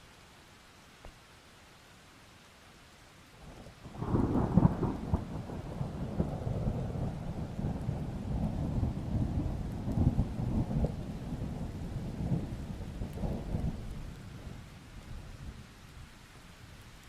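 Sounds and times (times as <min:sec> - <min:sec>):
steady rain: 0:00.0 - 0:17.0
rolling thunder: 0:04.0 - 0:14.6.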